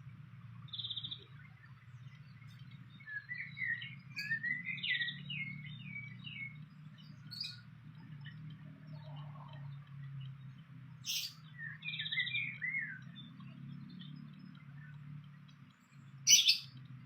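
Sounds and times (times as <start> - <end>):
bird chirps: 0.7 - 16.9
bird singing squeaky notes: 16.3 - 16.8.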